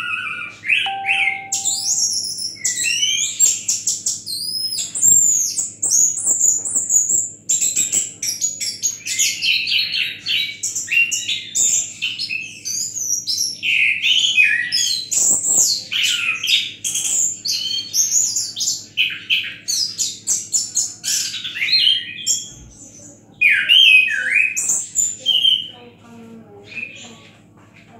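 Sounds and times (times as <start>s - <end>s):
thrush singing whistled notes: 0.9s - 2.4s.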